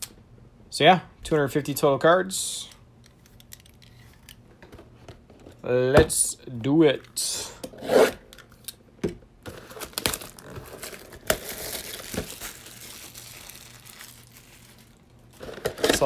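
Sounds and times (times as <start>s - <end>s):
plastic wrapping tearing and crinkling: 9.5s - 16.0s.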